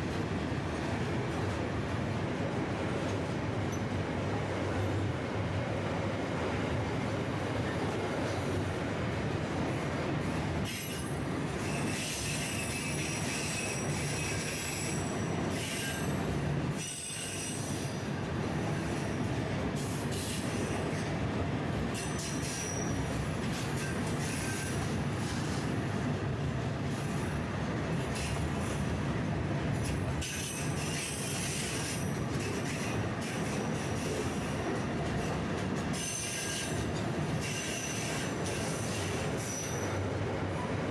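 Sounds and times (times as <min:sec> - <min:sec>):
freight train rumbling: 0:00.0 - 0:40.9
train wheels squealing: 0:10.2 - 0:21.2, 0:21.9 - 0:25.8, 0:26.9 - 0:28.9, 0:29.7 - 0:40.9.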